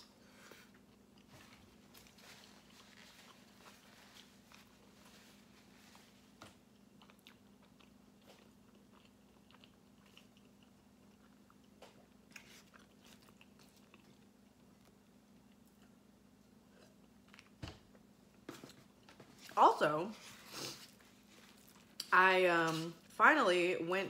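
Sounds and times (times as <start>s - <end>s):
person chewing: 0.0s - 5.8s, 6.4s - 17.6s, 20.4s - 22.1s.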